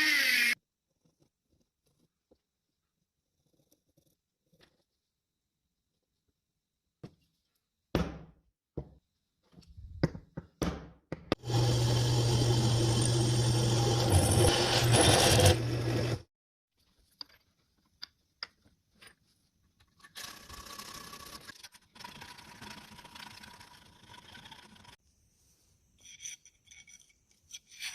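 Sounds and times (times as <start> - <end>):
power tool running: 11.4 - 16.2.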